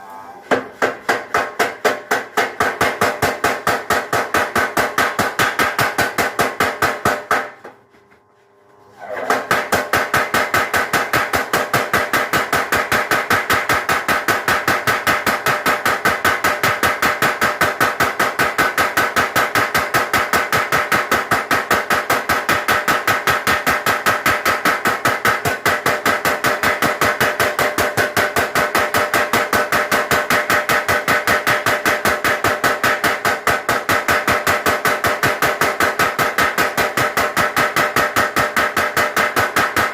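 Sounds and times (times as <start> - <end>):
power hammer blows on metal: 9.1 - 39.9.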